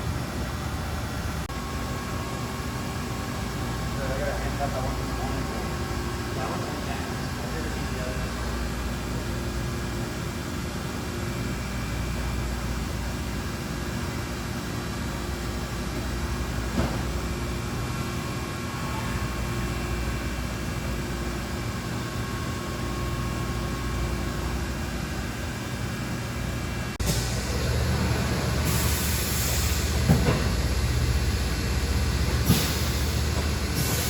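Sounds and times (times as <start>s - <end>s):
machine humming: 27.0s - 34.0s.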